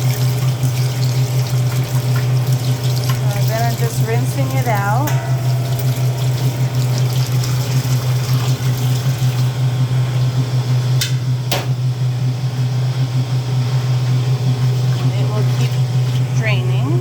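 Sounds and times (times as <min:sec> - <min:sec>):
water running and splashing: 0:00.0 - 0:10.3, 0:14.0 - 0:17.0
steady low hum: 0:00.0 - 0:17.0.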